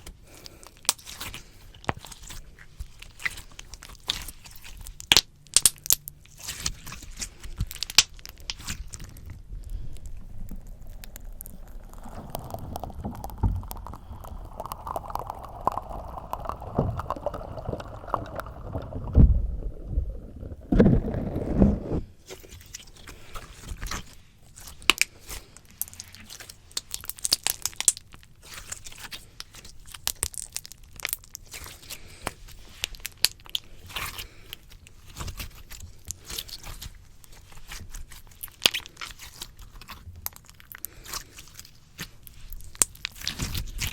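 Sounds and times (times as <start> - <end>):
slime squelching on microphone: 0.0 - 43.9
sticky pops and crackles: 0.0 - 43.9
thumps: 12.2 - 22.1.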